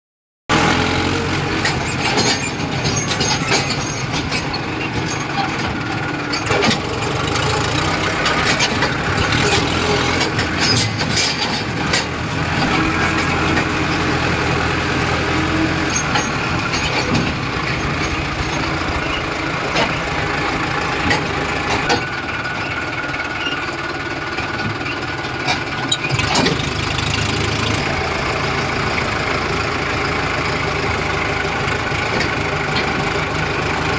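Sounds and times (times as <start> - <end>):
tractor diesel engine running: 0.5 - 33.9
sharp knocks and clanks: 1.6 - 14.2, 15.8 - 20.1, 21.0 - 22.1.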